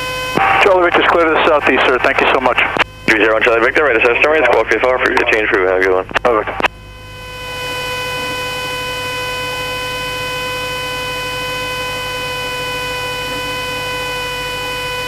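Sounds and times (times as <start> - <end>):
stall warning horn buzzing: 6.8 - 15.0.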